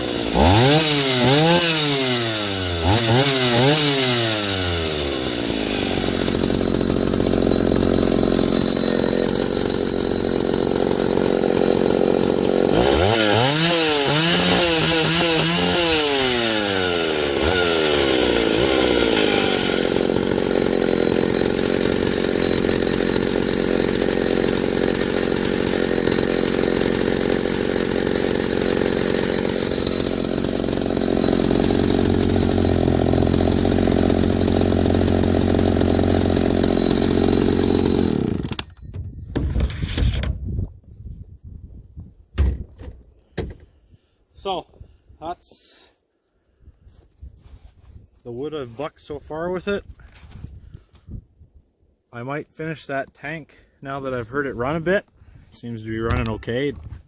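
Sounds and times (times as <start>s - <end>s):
chainsaw running: 0.0s - 38.8s.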